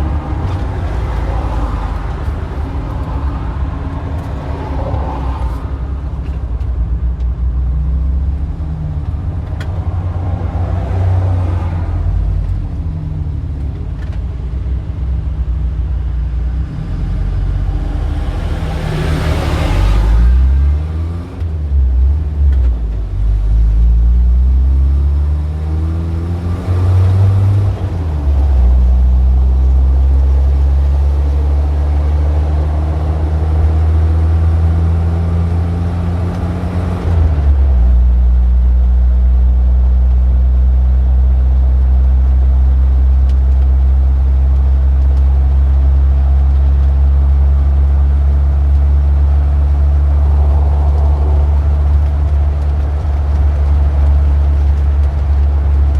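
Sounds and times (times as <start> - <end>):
vehicle engine revving: 16.4 - 39.9.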